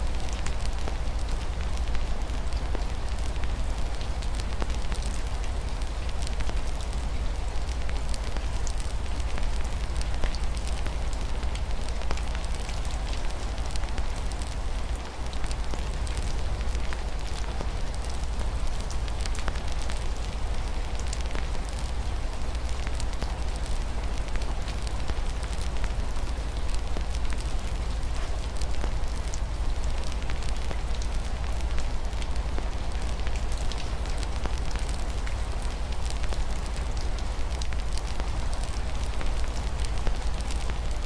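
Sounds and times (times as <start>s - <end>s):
rain on a window: 0.0s - 41.0s
wood fire crackling and popping: 22.5s - 41.0s.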